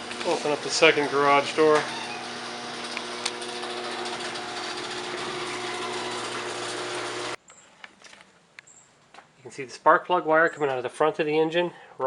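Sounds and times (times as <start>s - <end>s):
garage door motor humming: 0.0s - 7.4s.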